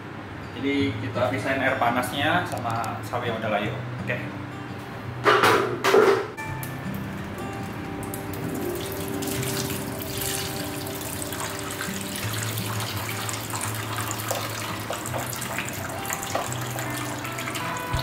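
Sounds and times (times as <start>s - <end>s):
water pouring into steel sink: 8.1s - 18.0s
tap running: 12.6s - 18.0s.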